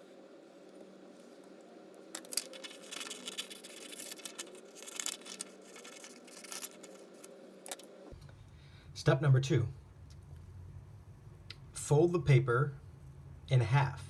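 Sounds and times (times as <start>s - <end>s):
faint background hum: 0.0s - 14.0s
scissors snipping paper: 2.2s - 7.0s.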